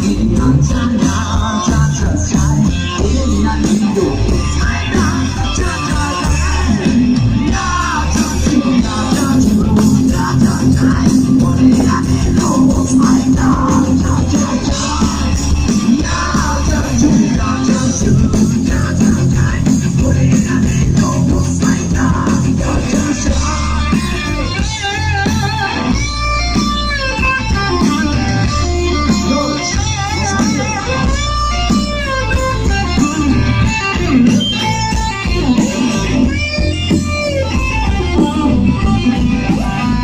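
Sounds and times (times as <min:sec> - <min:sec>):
bass guitar: 0:00.0 - 0:40.0
electric guitar: 0:00.0 - 0:40.0
melodic line with wavering pitch: 0:07.7 - 0:16.0.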